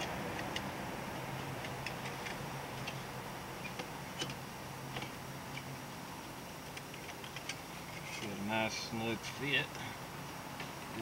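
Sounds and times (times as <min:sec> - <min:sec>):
metal parts clicking and tapping: 0:06.7 - 0:08.3.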